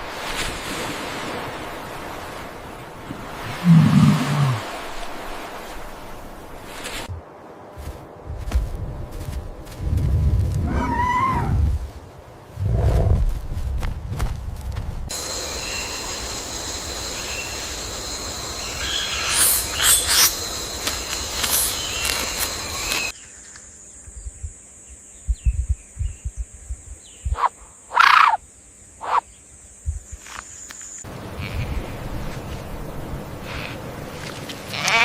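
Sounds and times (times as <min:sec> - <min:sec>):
high insect trill: 0:15.1 - 0:35.0
short sharp animal calls: 0:27.3 - 0:28.4, 0:29.0 - 0:29.2.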